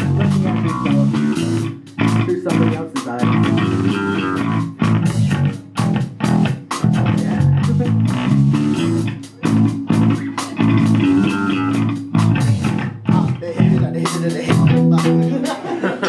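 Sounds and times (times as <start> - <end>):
bass guitar: 0.0 - 15.8
electric guitar chords: 0.0 - 15.9.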